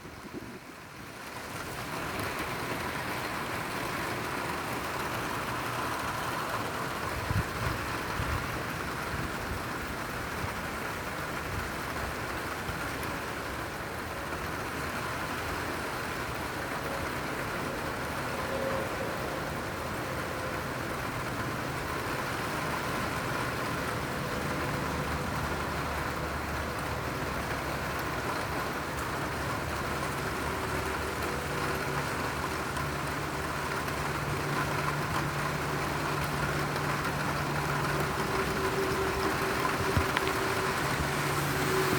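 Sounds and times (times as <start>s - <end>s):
heavy rain falling: 0.0s - 41.9s.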